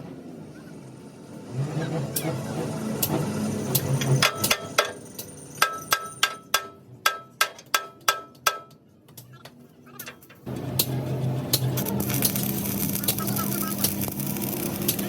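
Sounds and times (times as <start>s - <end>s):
hand hammer striking steel: 5.6s - 8.8s.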